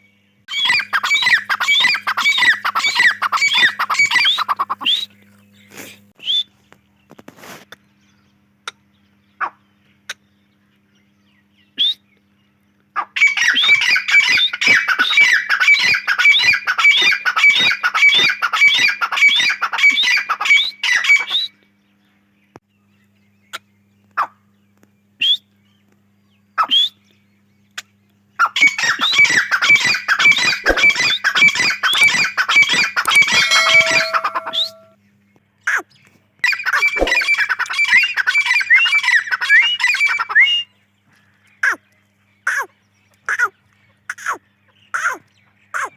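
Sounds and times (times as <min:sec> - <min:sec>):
francolin calling: 0:00.5 - 0:06.6, 0:28.4 - 0:35.0, 0:36.5 - 0:40.8.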